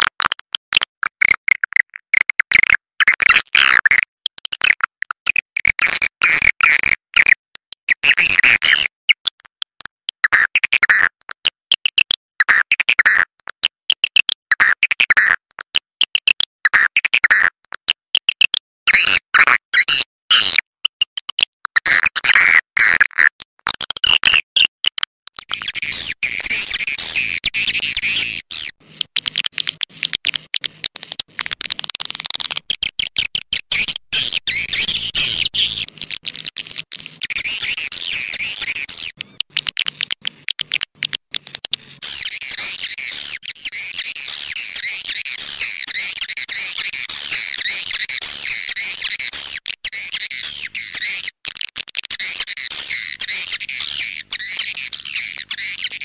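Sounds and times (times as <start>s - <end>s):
recorded swiftlet calls: 25.5s - 56.0s.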